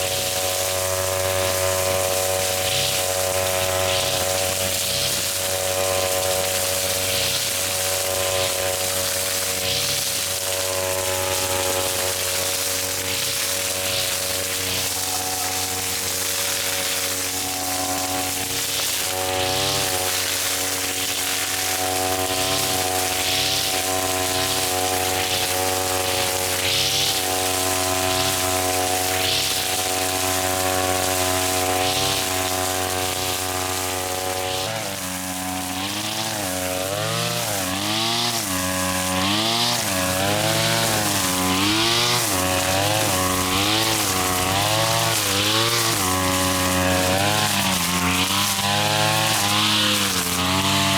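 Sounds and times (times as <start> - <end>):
grass cutter engine running: 0.0 - 50.9
hiss of cut grass: 0.0 - 50.9.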